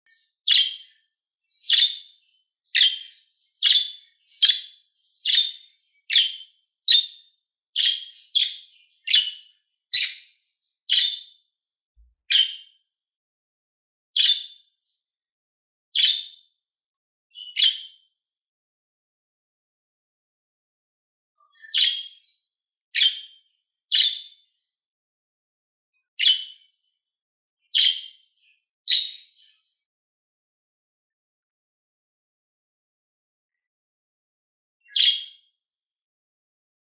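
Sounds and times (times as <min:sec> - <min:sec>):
budgerigar chirps: 0:00.5 - 0:00.8, 0:02.8 - 0:07.2, 0:07.8 - 0:10.2, 0:34.9 - 0:35.3.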